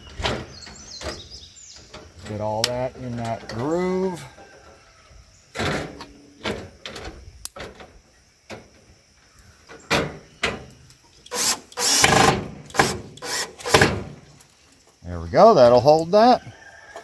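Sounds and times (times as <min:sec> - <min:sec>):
sharp clicks: 0:11.2 - 0:14.6.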